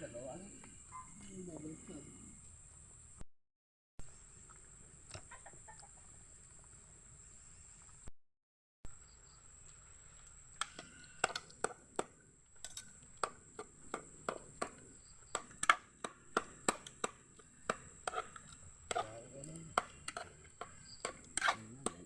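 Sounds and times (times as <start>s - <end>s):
knife chopping on cutting board: 13.2s - 22.0s.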